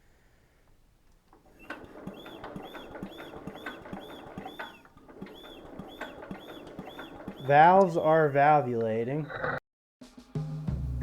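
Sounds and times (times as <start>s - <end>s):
engine valves squeaking: 1.1s - 9.6s
engine knocking: 1.5s - 8.2s.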